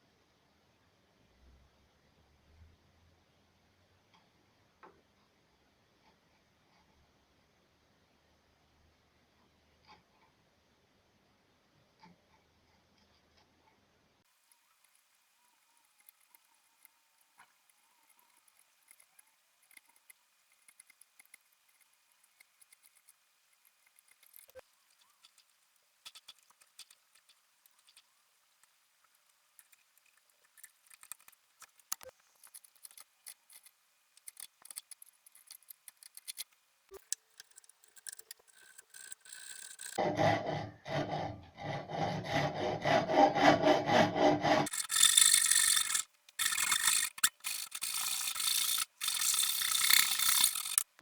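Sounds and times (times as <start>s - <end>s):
tools tapping and scratching wood: 14.5s - 51.0s.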